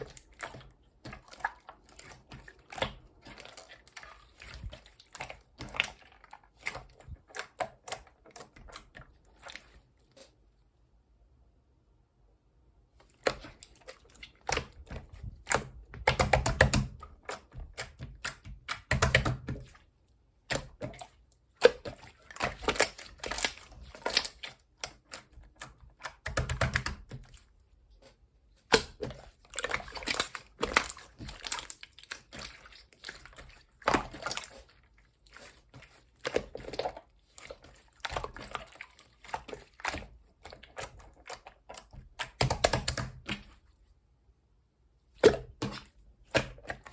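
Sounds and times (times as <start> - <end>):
slime squelching: 0.0 - 10.6, 12.9 - 44.1, 45.0 - 46.9
slime clicking and crackling: 37.5 - 43.4.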